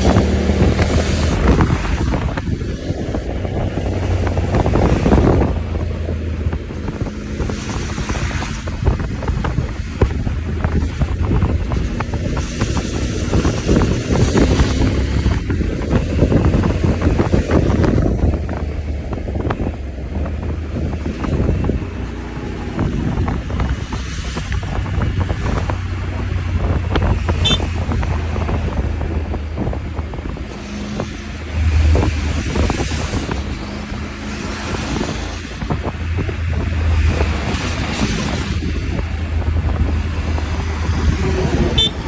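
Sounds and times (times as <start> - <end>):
motorcycle engine: 0.0 - 42.0
road noise: 0.0 - 42.0
wind buffeting microphone: 0.0 - 42.0.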